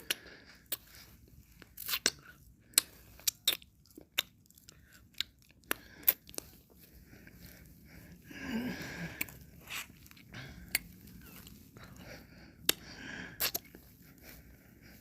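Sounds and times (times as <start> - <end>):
mouth clicks and smacks: 0.0 - 6.6, 9.1 - 11.6, 12.6 - 13.8.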